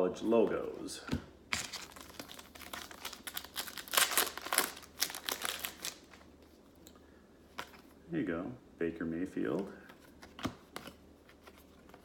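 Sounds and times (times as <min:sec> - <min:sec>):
wrapper crinkling and tearing: 0:01.5 - 0:06.3.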